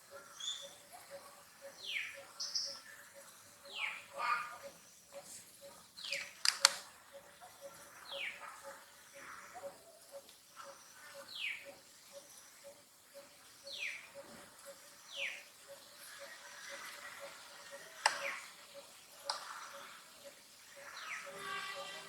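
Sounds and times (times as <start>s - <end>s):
faint regular ticking: 0.0s - 21.9s
sharp clicks: 6.1s - 6.9s, 19.2s - 19.5s.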